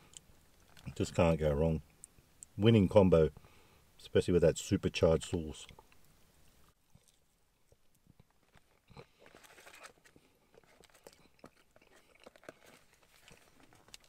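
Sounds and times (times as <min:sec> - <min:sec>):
person chewing crispy food: 0:06.8 - 0:14.0.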